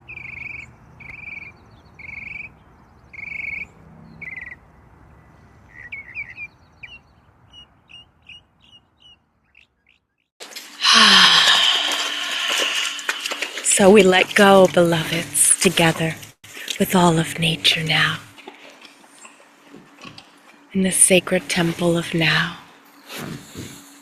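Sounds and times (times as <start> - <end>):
bird calling: 0.0 - 10.3
bird chirping quickly: 0.0 - 10.3
loud rush of noise: 10.8 - 13.8.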